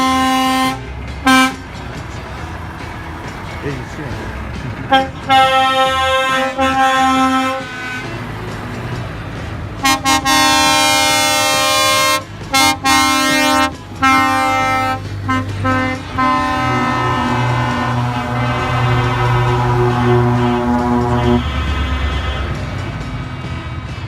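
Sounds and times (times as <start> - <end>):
lower-pitched horn: 0.0 - 1.6, 4.9 - 8.2, 9.8 - 22.7
truck air horn blasts: 0.0 - 1.8, 4.9 - 8.3, 9.8 - 23.0.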